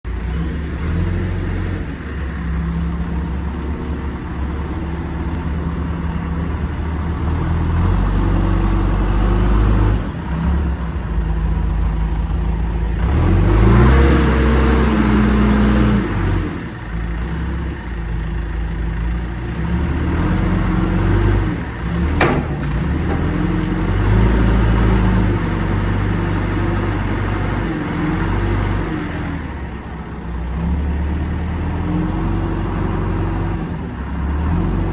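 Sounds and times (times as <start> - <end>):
diesel engine revving: 0.1 - 34.9.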